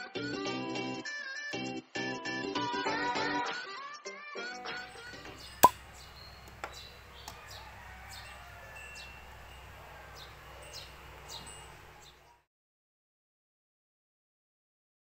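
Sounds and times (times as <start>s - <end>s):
sharp click: 5.6s - 5.8s.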